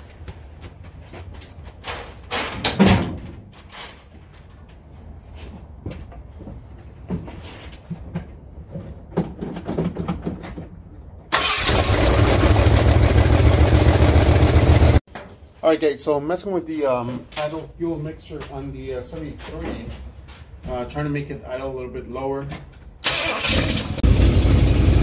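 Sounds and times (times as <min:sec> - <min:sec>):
car engine idling loudly: 0:11.9 - 0:15.0.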